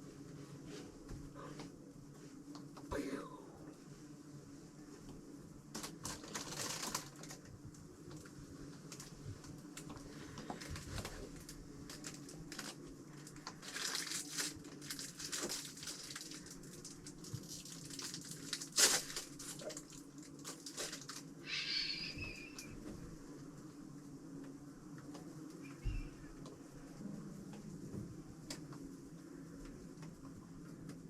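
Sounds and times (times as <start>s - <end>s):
rustling and crinkling: 0.0s - 2.9s, 3.8s - 31.0s
short bird call: 21.5s - 22.6s.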